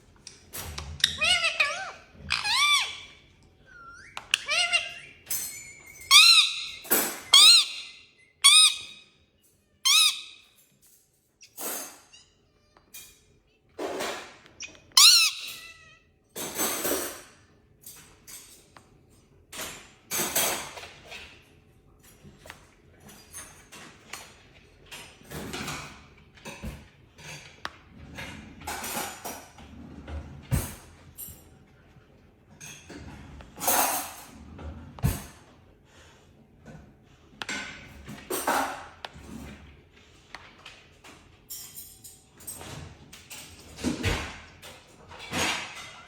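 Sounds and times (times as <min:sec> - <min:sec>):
parrot harsh squawks: 0:01.0 - 0:09.0, 0:09.8 - 0:10.5, 0:14.9 - 0:16.0.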